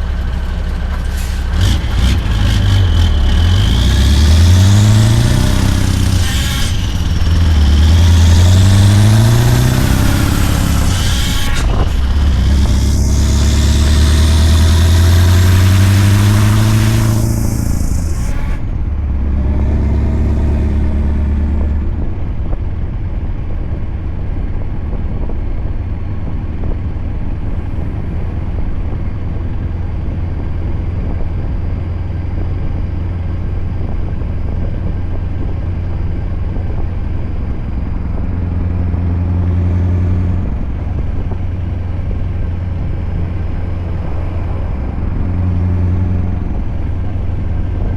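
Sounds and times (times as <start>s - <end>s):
diesel truck engine under load: 0.0s - 47.9s
loud hiss: 1.0s - 18.7s.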